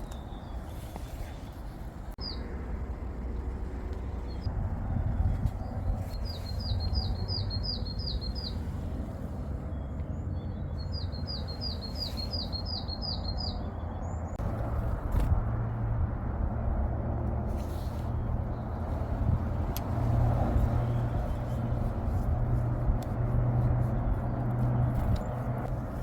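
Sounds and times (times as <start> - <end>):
low rumble: 1.8 - 11.8, 13.3 - 26.0.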